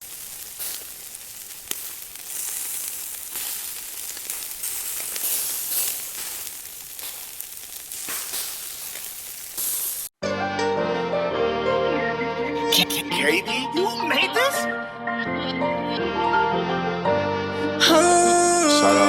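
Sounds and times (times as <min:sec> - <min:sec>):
rain falling: 0:00.0 - 0:10.1.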